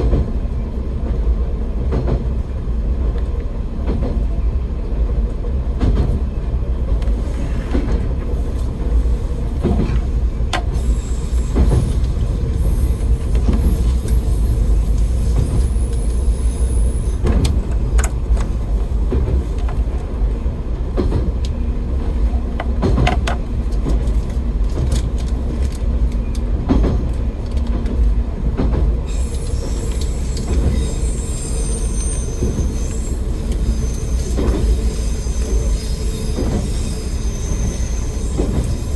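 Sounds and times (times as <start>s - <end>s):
rail-joint clacks: 0.0s - 38.9s
railcar engine and wheels rumbling: 0.0s - 38.9s
wheel squeal: 29.1s - 38.9s.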